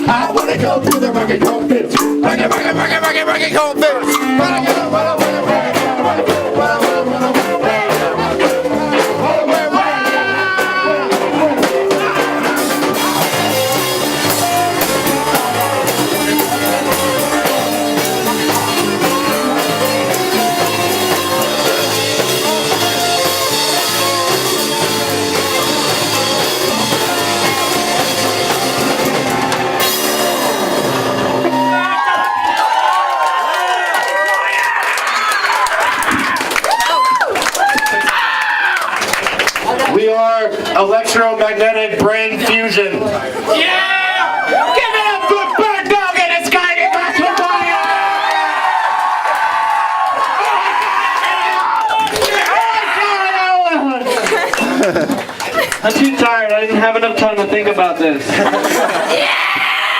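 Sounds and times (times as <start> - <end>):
person singing: 0.0 - 31.8
drum kit: 0.0 - 33.6
electric guitar: 4.0 - 32.6.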